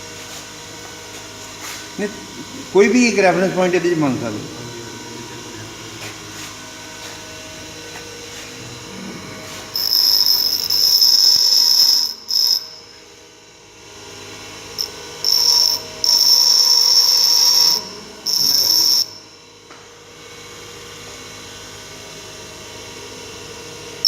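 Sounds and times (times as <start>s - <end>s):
grinder motor humming: 0.0s - 24.0s
grinder screeching on steel: 8.4s - 12.8s, 14.8s - 19.2s.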